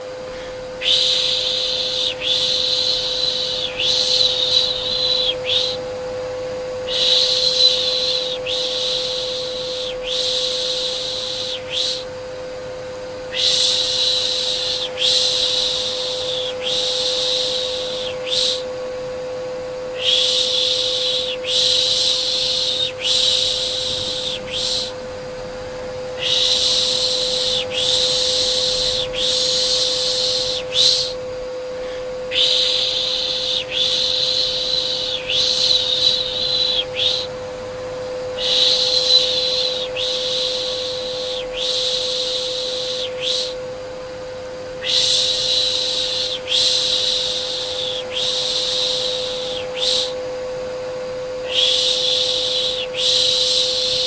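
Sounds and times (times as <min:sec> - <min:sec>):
vacuum cleaner humming: 0:00.0 - 0:54.0
person shushing: 0:00.2 - 0:05.8, 0:20.0 - 0:25.0, 0:26.2 - 0:37.3.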